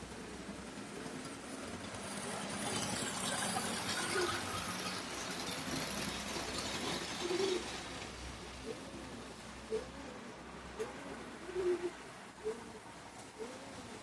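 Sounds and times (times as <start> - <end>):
model train motor and wheels rattling: 0.0 - 8.4.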